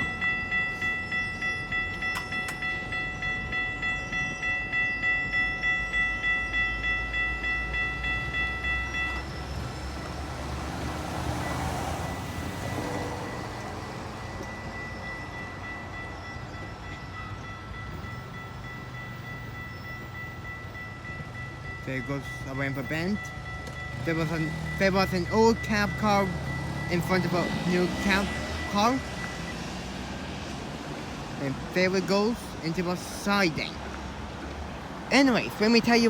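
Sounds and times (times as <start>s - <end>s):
level crossing bell ringing: 0.0s - 30.8s, 35.1s - 36.0s
train rumble: 0.0s - 36.0s
wheel and rail noise: 0.0s - 36.0s.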